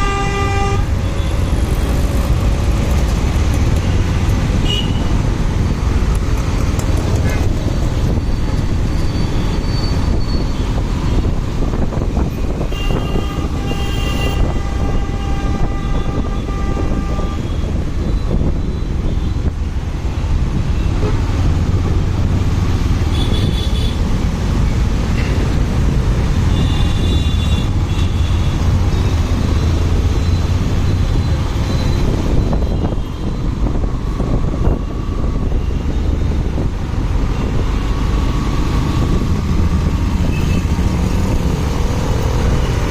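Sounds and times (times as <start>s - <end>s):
vehicle horns: 0.0s - 1.6s, 4.6s - 5.2s, 12.6s - 17.8s, 23.1s - 24.0s, 26.4s - 29.2s, 40.2s - 40.8s
wind: 0.0s - 42.9s.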